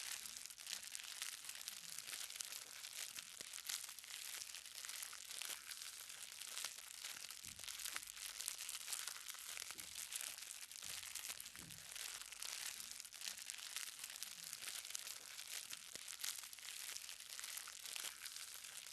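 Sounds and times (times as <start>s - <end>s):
light rain pattering on hard ground: 10.9s - 13.6s.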